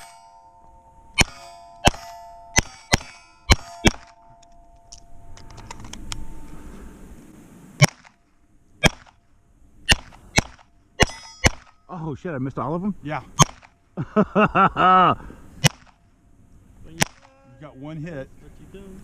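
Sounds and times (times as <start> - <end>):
steel plate ringing: 0.0 - 6.6, 11.0 - 12.0
pistol shots: 1.2 - 4.3, 9.9 - 11.8, 13.4 - 13.8.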